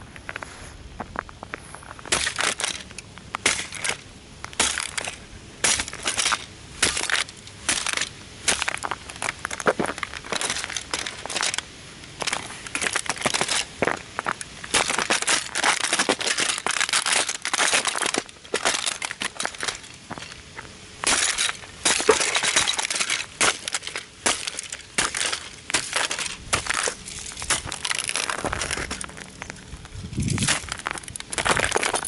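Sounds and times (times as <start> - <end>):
small parts clinking: 2.2 - 20.4
model car being crushed: 12.2 - 20.4, 21.0 - 29.5, 30.2 - 32.0.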